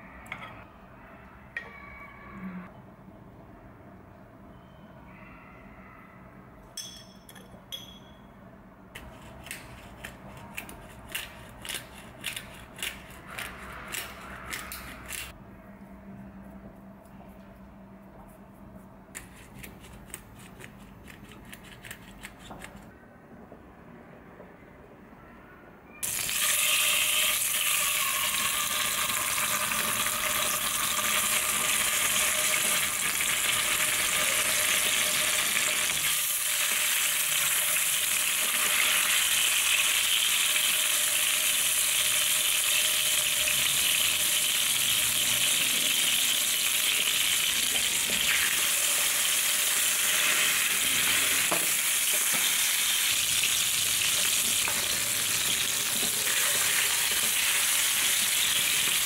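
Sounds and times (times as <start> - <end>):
fish frying in oil: 26.0 - 59.0.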